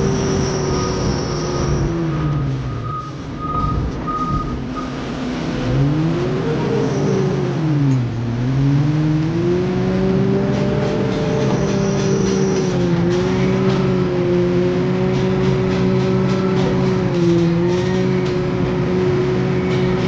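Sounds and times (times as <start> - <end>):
diesel engine revving: 0.0 - 20.0
high beeping: 1.5 - 5.0.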